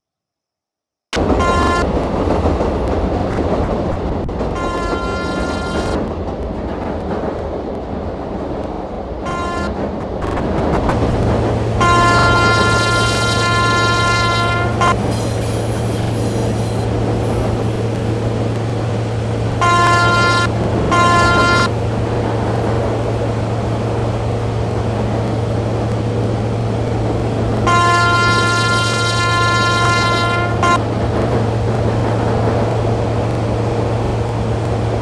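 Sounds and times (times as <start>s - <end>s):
train horn blasts: 1.2s - 1.9s, 4.5s - 6.1s, 9.2s - 9.8s, 11.6s - 18.0s, 19.5s - 21.9s, 27.6s - 31.0s
train rumbling: 1.2s - 35.0s.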